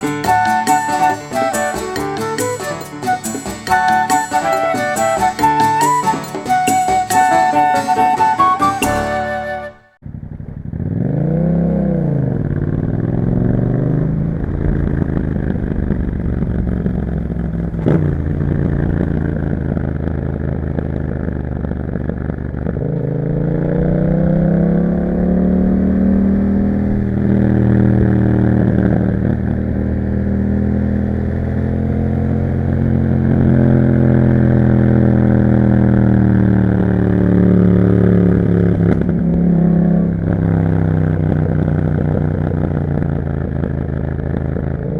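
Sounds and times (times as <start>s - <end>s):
motorcycle engine revving: 10.0s - 44.9s.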